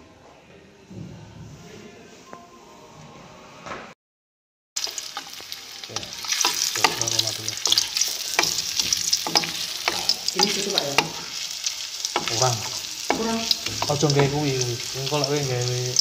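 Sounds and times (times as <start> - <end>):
carrots sizzling in hot oil: 4.8 - 16.0
spatula scraping and tapping pan: 6.0 - 11.4, 12.1 - 15.3.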